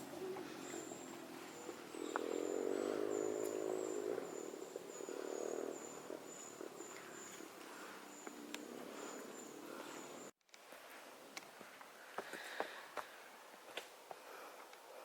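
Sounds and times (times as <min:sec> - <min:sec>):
humming drone: 0:00.0 - 0:10.3.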